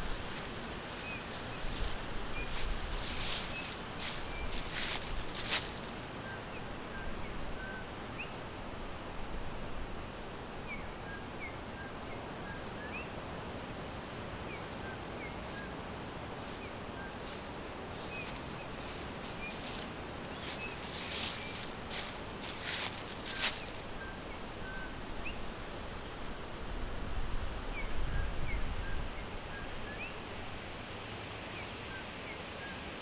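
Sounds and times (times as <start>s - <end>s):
rustling crackles: 0.0s - 6.3s, 13.7s - 24.3s
background hiss: 0.0s - 28.0s.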